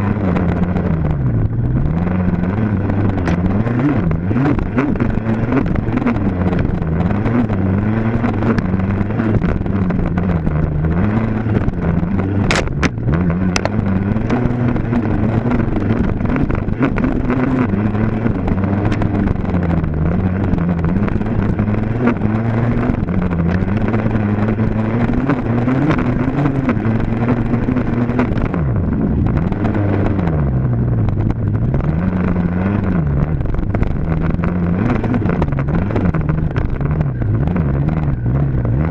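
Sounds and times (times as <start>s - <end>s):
dirt bike engine revving: 0.0s - 30.6s
sharp clicks: 12.4s - 14.4s.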